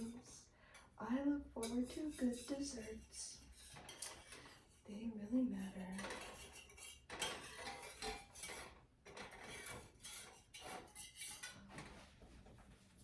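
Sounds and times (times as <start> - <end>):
whisk scraping a saucepan: 0.0 - 0.3, 1.6 - 12.2.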